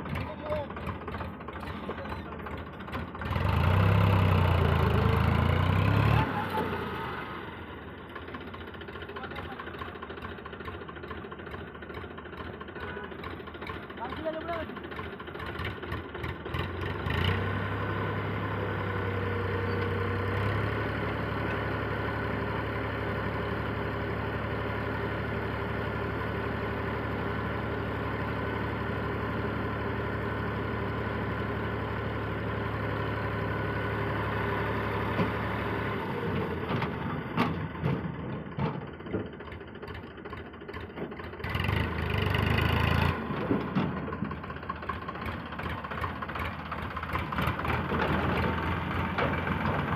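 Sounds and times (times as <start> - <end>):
diesel engine running: 0.0 - 49.9
metal knocks and clanks: 36.7 - 39.6.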